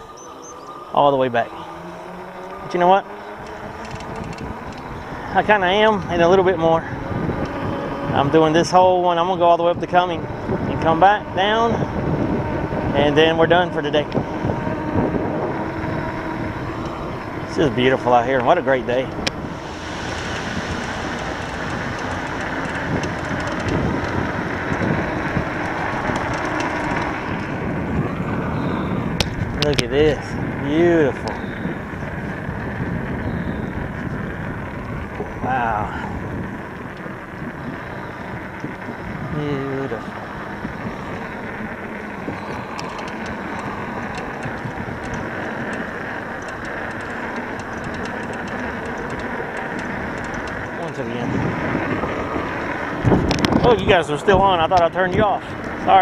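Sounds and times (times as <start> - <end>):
bike tyres rolling on trail: 0.0 - 56.0
wind on microphone: 0.0 - 56.0
small ticks: 3.4 - 4.9, 41.1 - 51.0
sharp ticks: 19.1 - 27.5, 40.1 - 51.1.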